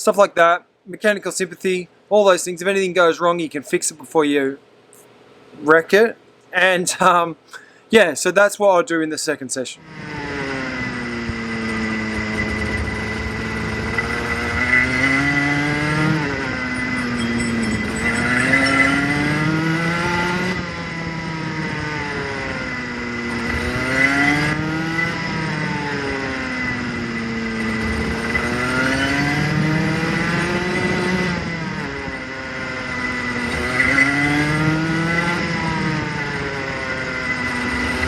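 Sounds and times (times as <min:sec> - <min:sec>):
steady high whine: 0:00.0 - 0:38.0
kart engine revving: 0:09.8 - 0:38.0.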